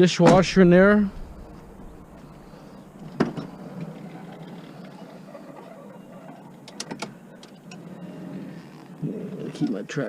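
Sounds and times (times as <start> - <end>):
sharp knock: 0.3 - 3.6
low steady hum: 0.3 - 8.5.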